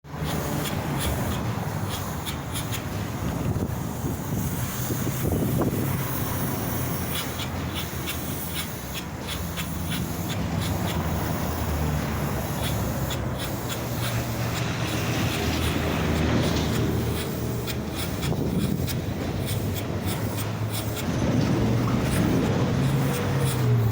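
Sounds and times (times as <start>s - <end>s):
spray machine humming: 0.0s - 23.9s
spraying hiss: 0.1s - 23.9s.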